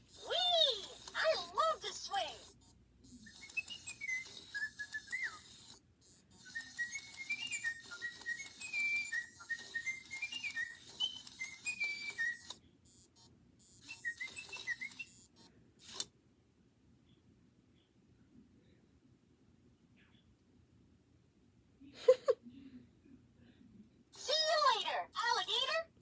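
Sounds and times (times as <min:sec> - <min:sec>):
toy bird whistling a tune: 0:00.1 - 0:02.5, 0:03.1 - 0:12.6, 0:13.7 - 0:16.0.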